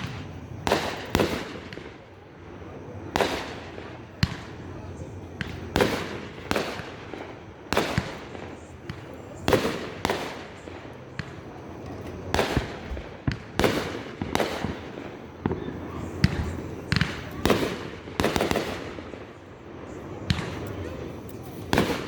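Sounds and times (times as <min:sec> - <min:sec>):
fireworks banging: 0:00.0 - 0:22.0.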